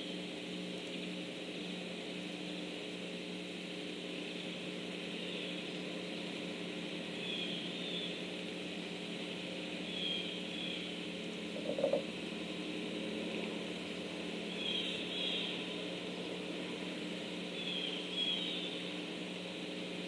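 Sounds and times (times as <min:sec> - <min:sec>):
machine hum with hiss: 0:00.0 - 0:20.0
faint bird chirps: 0:05.1 - 0:05.7, 0:07.2 - 0:08.2, 0:09.8 - 0:11.0, 0:14.5 - 0:16.4, 0:17.5 - 0:18.9.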